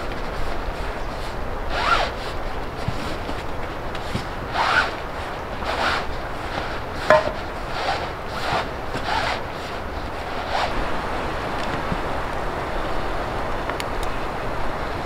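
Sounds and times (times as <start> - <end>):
footsteps crunching: 6.7 - 7.6.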